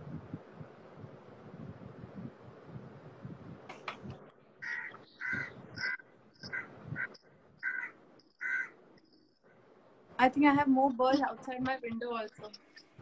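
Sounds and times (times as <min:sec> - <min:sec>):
birds calling: 0:04.6 - 0:09.5.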